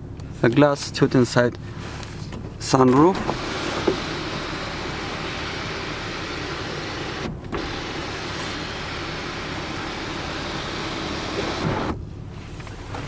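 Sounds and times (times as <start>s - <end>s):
sunroof motor running: 3.0s - 13.0s.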